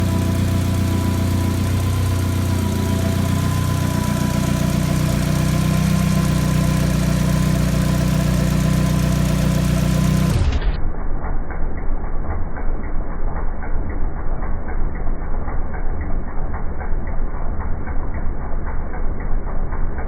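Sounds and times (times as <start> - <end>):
car engine idling: 0.0 - 10.8.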